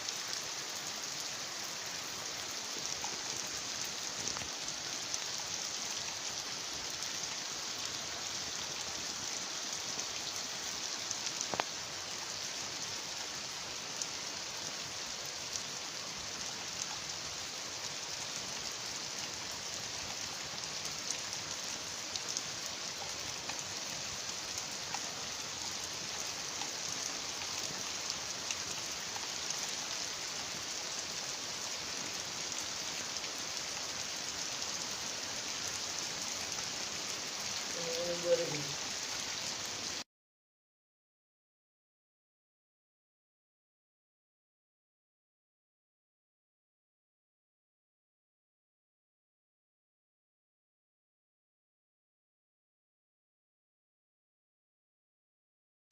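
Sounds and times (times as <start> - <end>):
heavy rain falling: 0.0 - 40.0
small ticks: 11.4 - 11.7.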